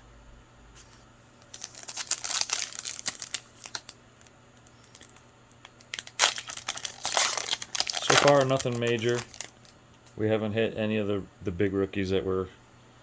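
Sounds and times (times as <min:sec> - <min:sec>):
foil wrapper crinkling: 0:01.4 - 0:10.2.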